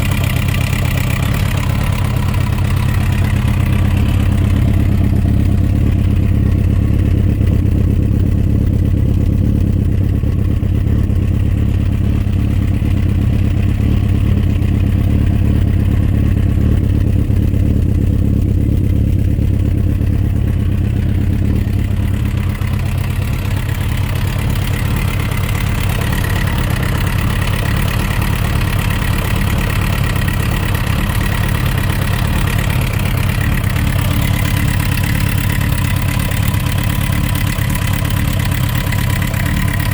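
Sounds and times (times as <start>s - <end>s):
motorcycle engine idling with knocking: 0.0s - 39.9s.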